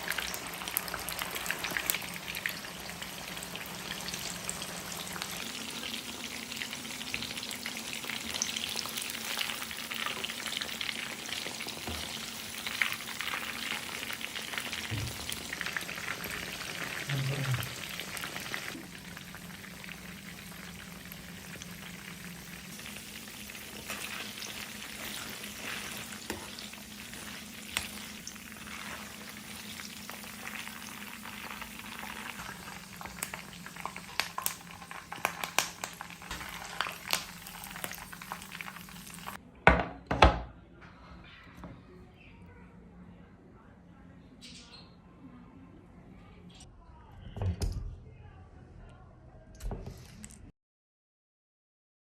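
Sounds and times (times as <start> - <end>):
chicken sizzling in a pan: 0.0 - 39.4
spatula scraping a pan: 23.7 - 29.3.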